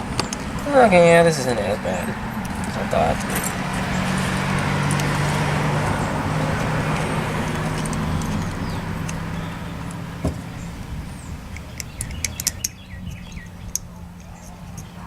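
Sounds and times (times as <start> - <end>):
metal parts and tools clicking: 6.6 - 9.2, 11.5 - 14.9.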